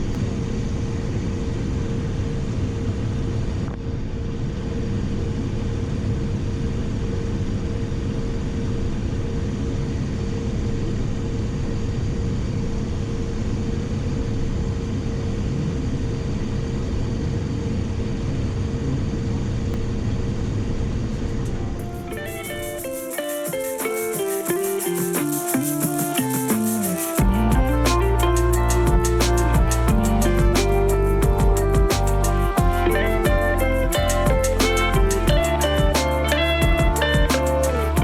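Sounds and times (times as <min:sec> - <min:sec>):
jet engines and airflow rushing: 0:00.0 - 0:38.0
steady engine whine: 0:00.0 - 0:38.0.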